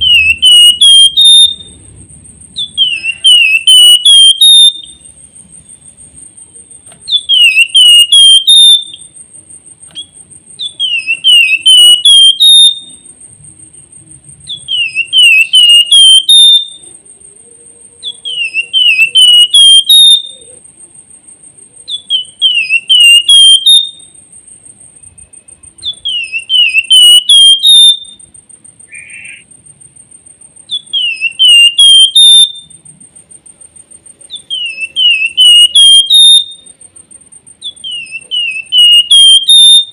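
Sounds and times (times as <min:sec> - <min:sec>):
bird singing whistled phrase: 0:00.0 - 0:01.8, 0:02.6 - 0:05.1, 0:07.0 - 0:09.1, 0:10.0 - 0:13.0, 0:14.5 - 0:16.8, 0:18.0 - 0:20.5, 0:21.9 - 0:24.1, 0:25.8 - 0:28.2, 0:30.7 - 0:32.7, 0:34.3 - 0:36.7, 0:37.6 - 0:39.9.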